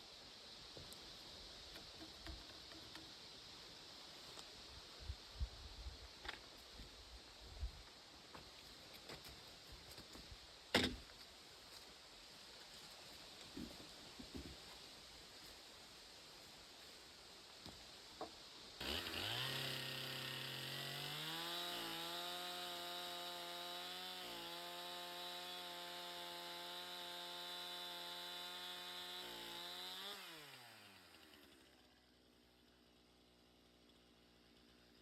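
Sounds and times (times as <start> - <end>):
chainsaw revving: 18.8 - 31.9.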